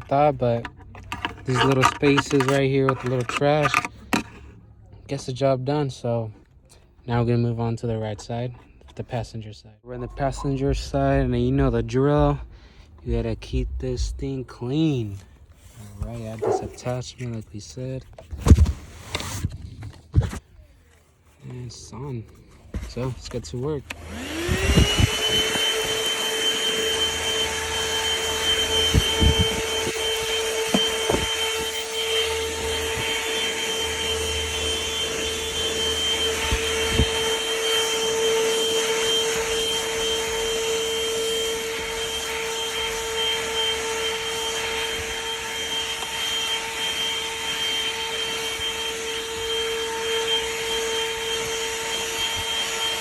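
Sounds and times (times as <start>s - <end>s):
handheld vacuum motor whining: 0.0s - 4.6s, 15.2s - 17.4s, 22.4s - 53.0s
vacuum nozzle knocking: 24.0s - 34.2s.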